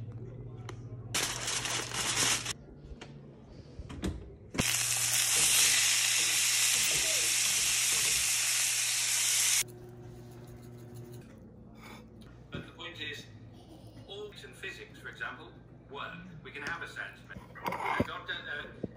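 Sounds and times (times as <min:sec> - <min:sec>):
aluminium foil crinkle: 0:01.2 - 0:02.6
chicken sizzling in a pan: 0:04.6 - 0:09.6.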